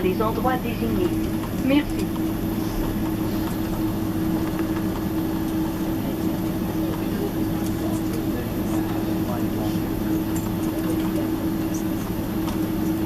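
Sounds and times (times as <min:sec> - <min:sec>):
air-conditioning airflow: 0:00.0 - 0:13.0
jet engines idling: 0:00.0 - 0:13.0.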